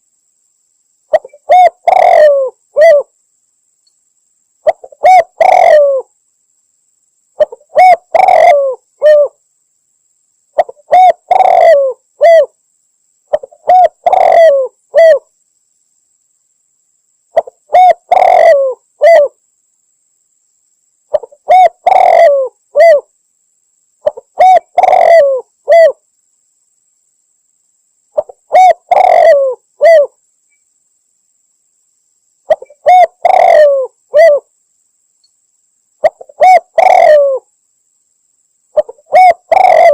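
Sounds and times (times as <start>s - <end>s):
dove cooing: 1.1s - 3.1s, 4.6s - 6.1s, 7.4s - 9.4s, 10.6s - 12.5s, 13.3s - 15.3s, 17.4s - 19.4s, 21.1s - 23.1s, 24.0s - 26.0s, 28.2s - 30.2s, 32.5s - 34.5s, 36.0s - 37.5s, 38.8s - 39.9s.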